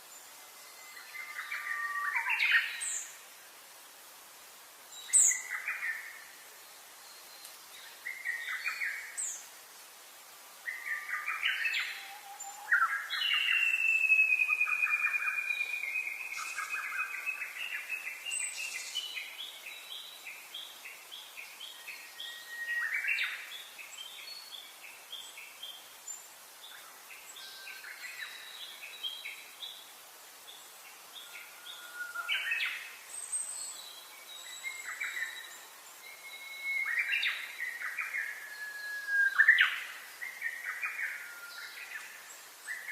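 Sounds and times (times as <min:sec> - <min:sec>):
faint steady hiss: 0:00.0 - 0:42.9
long falling bird whistle: 0:10.7 - 0:17.4, 0:31.2 - 0:32.6, 0:34.4 - 0:39.9, 0:40.8 - 0:41.9
birds chirping and singing: 0:10.7 - 0:24.6.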